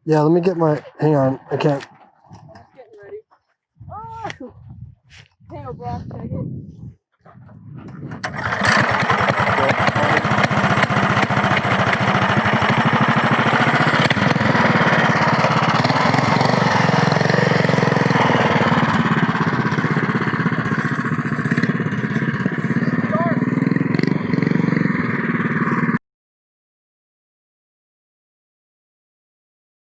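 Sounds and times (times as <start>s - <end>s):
minibike engine revving high: 7.9s - 26.0s.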